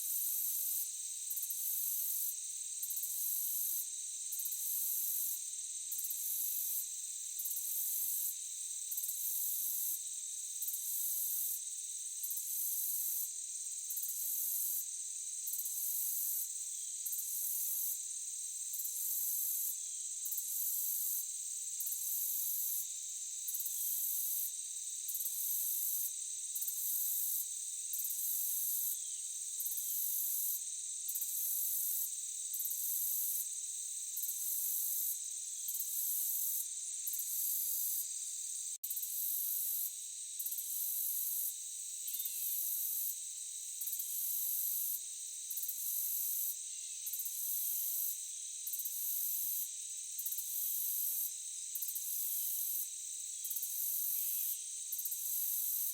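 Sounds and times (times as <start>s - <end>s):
insects buzzing: 16.3s - 41.2s, 41.8s - 55.9s
pulsing insect trill: 25.0s - 43.2s, 43.8s - 55.9s.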